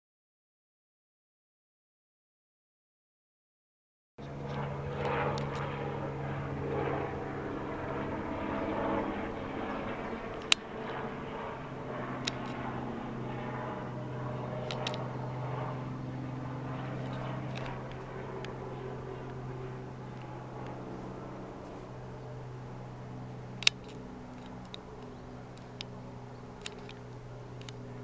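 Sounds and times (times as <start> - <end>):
aircraft engine drone: 4.2 - 28.0
sharp clicks: 4.5 - 5.7, 9.9 - 10.8, 11.5 - 28.0.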